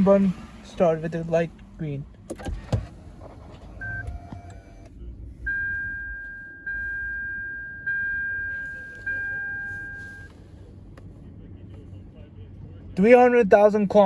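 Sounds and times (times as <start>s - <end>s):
brief tones: 5.5s - 10.3s
short beep: 5.5s - 10.3s.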